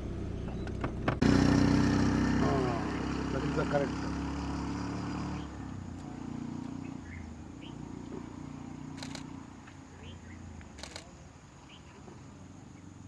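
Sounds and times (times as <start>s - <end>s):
vehicle engine idling: 0.0s - 13.0s
sharp clicks: 9.0s - 9.3s, 10.6s - 11.1s.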